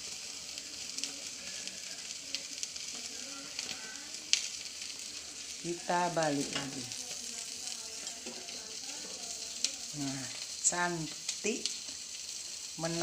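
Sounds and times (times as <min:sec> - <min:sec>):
fish sizzling on a grill pan: 0:00.0 - 0:13.0
pops and crackles: 0:00.2 - 0:05.1.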